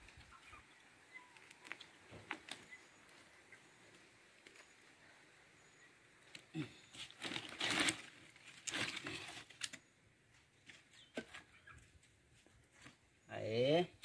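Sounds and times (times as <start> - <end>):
sticks rustling and cracking: 1.3 - 3.2, 6.2 - 9.9.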